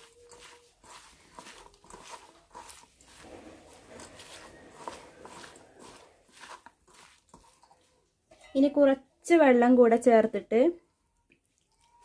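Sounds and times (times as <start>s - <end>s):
spoon scraping in a pan: 0.0s - 8.8s.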